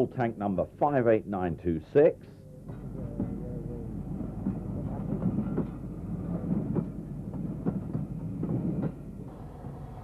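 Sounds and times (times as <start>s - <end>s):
steam train running: 2.6s - 10.0s.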